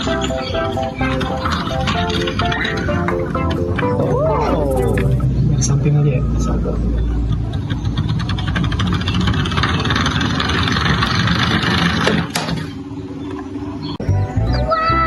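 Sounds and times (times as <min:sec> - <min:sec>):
cartoon tune with sliding notes: 0:00.0 - 0:05.3
car engine revving with rattle: 0:04.7 - 0:14.0.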